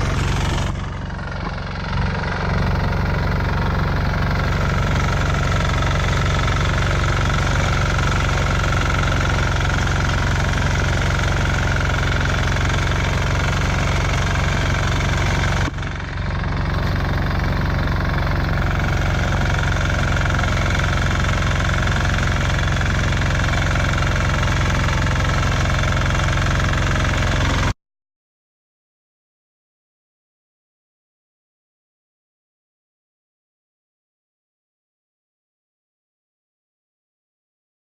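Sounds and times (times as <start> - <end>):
walk-behind tractor engine running: 0.0 - 27.8.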